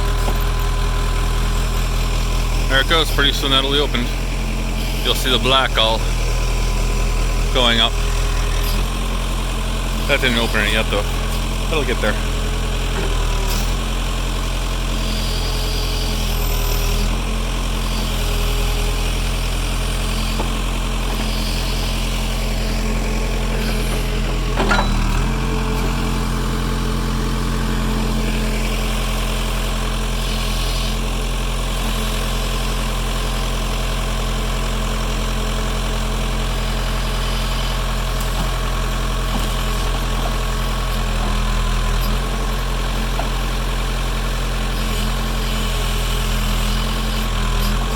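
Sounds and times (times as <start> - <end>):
engine running steadily: 0.0 - 47.9.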